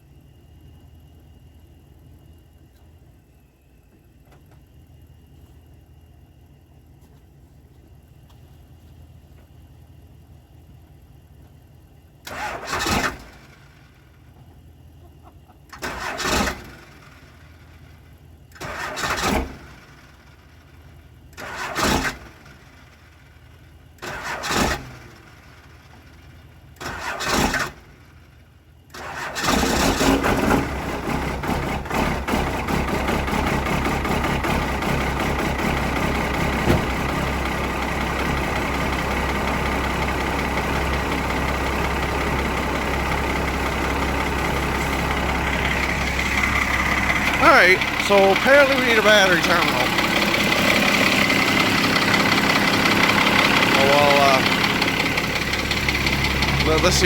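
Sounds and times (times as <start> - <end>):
engine running: 0.0 - 57.0
engine starter cranking: 12.2 - 13.7, 15.6 - 17.4, 18.5 - 20.1, 21.3 - 22.6, 24.0 - 25.4, 26.8 - 27.9, 28.9 - 57.0.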